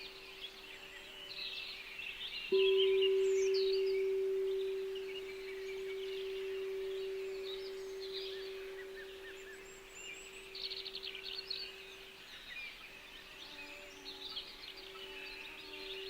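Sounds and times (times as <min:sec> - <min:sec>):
songbirds chirping and trilling: 0:00.0 - 0:16.0
steady pure tone: 0:02.5 - 0:12.2.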